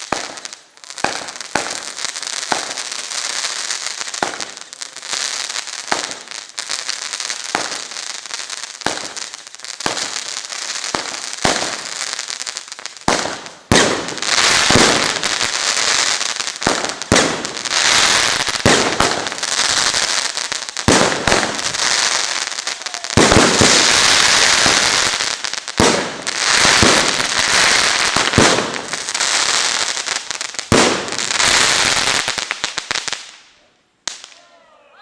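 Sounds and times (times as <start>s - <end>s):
heavy firework bangs: 0.0s - 5.0s, 5.8s - 33.3s
fireworks crackling: 0.0s - 34.6s.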